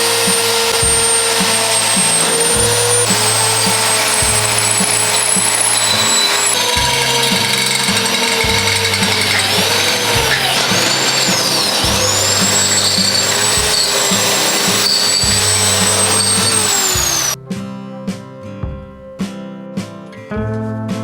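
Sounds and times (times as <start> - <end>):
electric power tool whining: 0.0 - 17.4
background music with steady beat: 0.0 - 21.0.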